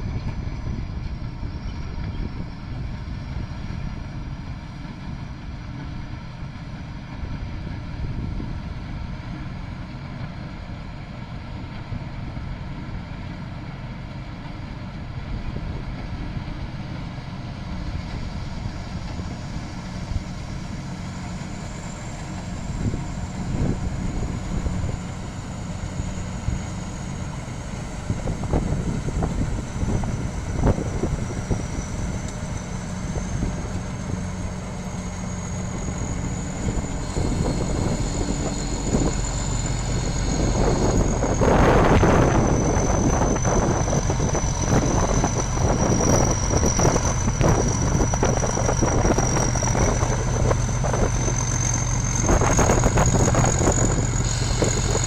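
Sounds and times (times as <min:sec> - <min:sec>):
combine harvester running: 0:00.0 - 0:55.0
high wavering machine whine: 0:17.5 - 0:55.0.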